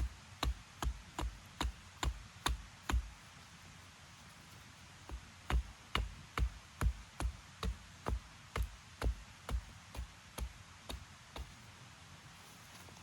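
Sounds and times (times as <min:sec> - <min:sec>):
dull heavy knocks: 0:05.1 - 0:11.6.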